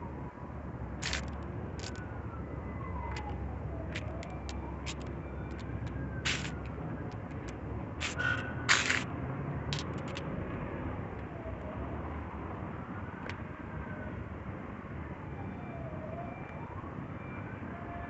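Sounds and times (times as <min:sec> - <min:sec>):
distant siren wailing: 0:00.0 - 0:18.0
scattered clicks: 0:01.0 - 0:02.1, 0:03.0 - 0:09.1, 0:09.7 - 0:10.3.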